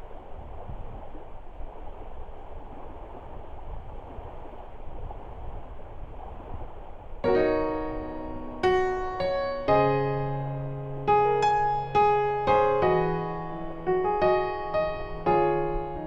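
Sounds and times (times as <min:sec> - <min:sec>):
low outdoor hiss: 0:00.0 - 0:16.0
piano chords: 0:07.2 - 0:16.0.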